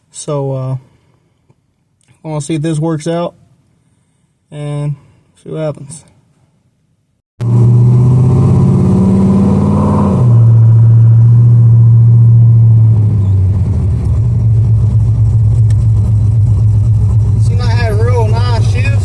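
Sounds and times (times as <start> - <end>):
car engine accelerating: 7.4 - 19.0.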